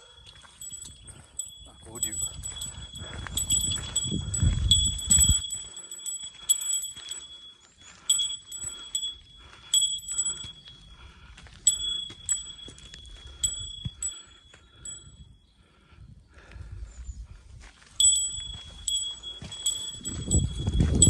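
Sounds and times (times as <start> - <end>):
small metal bell ringing: 0.0 - 15.4, 18.0 - 21.0
low wind rumble on microphone: 0.6 - 5.9, 9.8 - 21.0.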